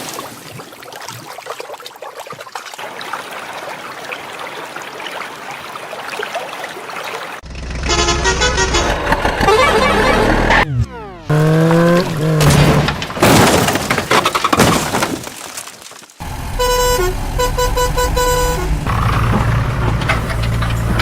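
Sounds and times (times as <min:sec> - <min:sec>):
engine rumble: 0:07.4 - 0:13.2, 0:16.2 - 0:21.0
vehicle horn blasts: 0:07.7 - 0:10.3, 0:16.2 - 0:19.0.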